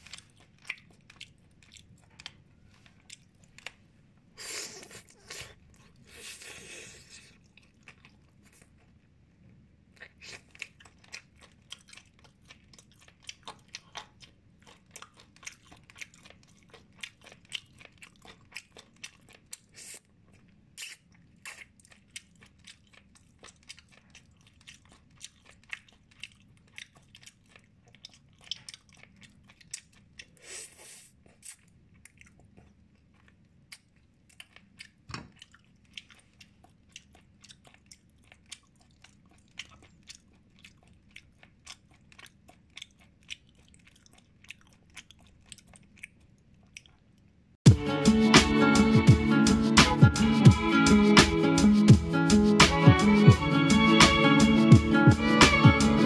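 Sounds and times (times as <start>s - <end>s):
chewing wet clicks: 0.0s - 3.8s, 10.0s - 30.4s, 31.4s - 47.3s.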